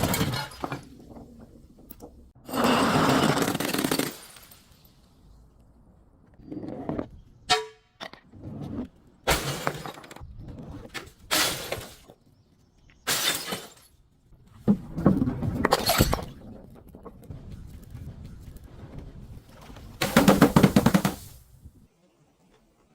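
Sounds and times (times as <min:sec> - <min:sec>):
glass bottles shattering: 0:00.0 - 0:01.0, 0:13.1 - 0:14.0, 0:15.7 - 0:16.4.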